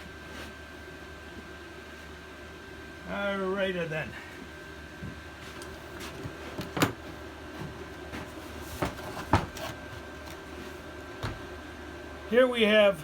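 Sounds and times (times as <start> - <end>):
space heater hum: 0.0 - 13.0
knocks and clunks of handling: 5.0 - 10.4.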